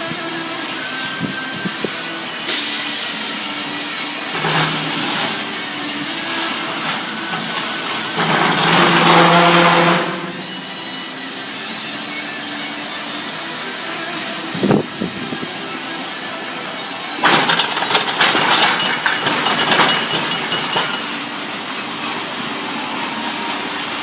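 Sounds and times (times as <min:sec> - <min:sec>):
heavy truck engine running: 0:00.0 - 0:24.0
air brake hissing: 0:02.5 - 0:03.9.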